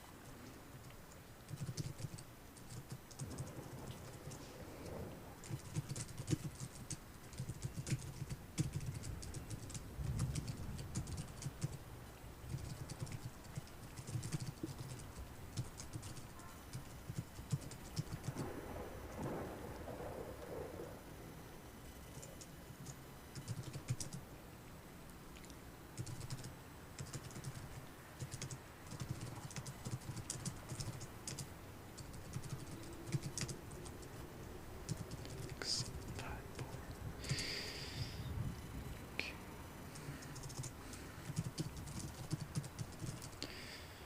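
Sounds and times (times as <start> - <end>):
typing on computer keyboard: 1.5 - 4.4, 5.4 - 11.8, 12.5 - 18.4, 22.2 - 24.2, 26.0 - 34.2, 34.9 - 36.7, 40.0 - 43.5.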